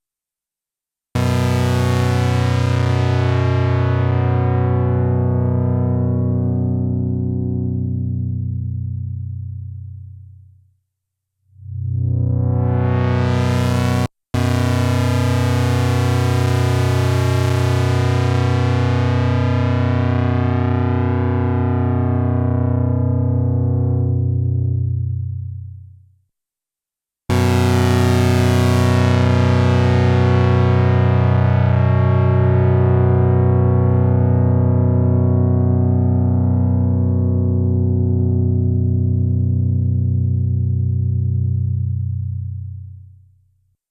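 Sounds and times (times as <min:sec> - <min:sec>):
low synthesizer note: 0:01.2 - 0:10.4, 0:11.5 - 0:16.6, 0:27.3 - 0:43.1.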